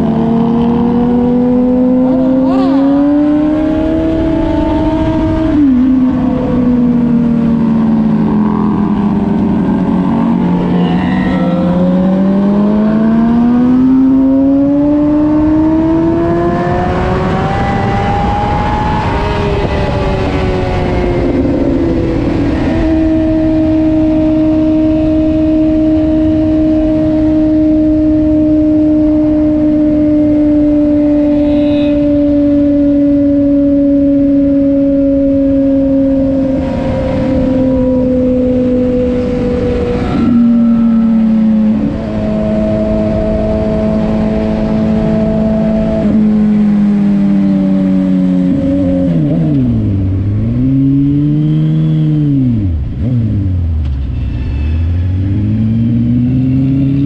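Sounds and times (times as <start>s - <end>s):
rush of noise: 0.0s - 14.1s.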